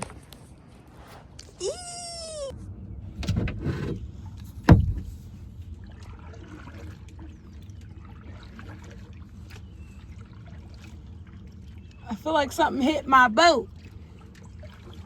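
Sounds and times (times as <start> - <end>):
low steady rumble: 0.0 - 15.0
paddle splash: 3.9 - 15.0.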